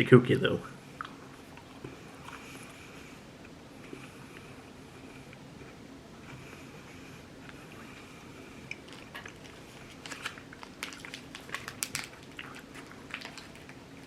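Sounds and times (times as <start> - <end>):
chewing chocolate crunches: 8.6 - 14.0.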